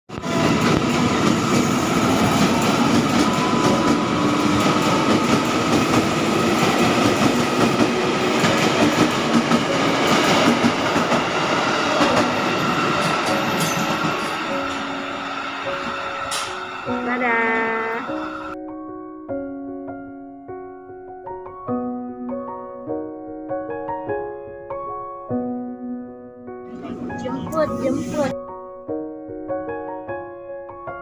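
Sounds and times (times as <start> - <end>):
train rumbling on rails: 0.1 - 18.6
train wheel clicks: 15.8 - 16.7.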